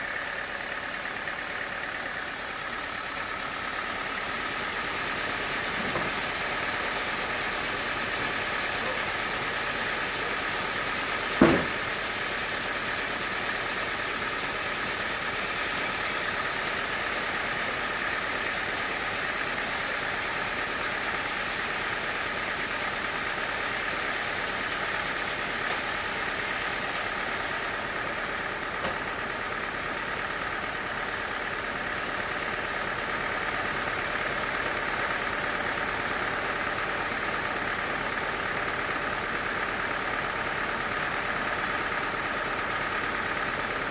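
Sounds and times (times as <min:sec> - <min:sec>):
sharp knock: 0:11.4 - 0:11.8.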